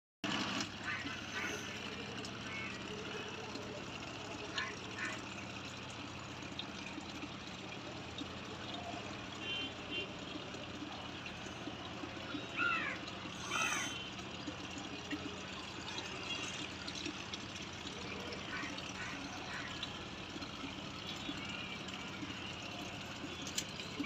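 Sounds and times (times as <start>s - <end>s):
animal calls: 12.5s - 14.0s.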